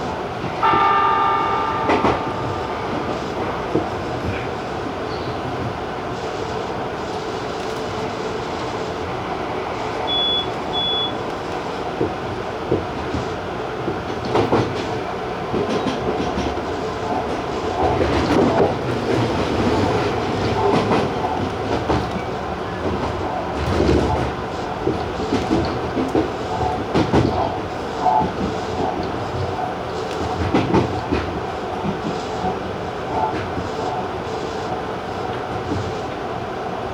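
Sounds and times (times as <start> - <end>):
train wheels rumbling on rail: 0.0 - 36.9
short high beeps: 10.1 - 11.2.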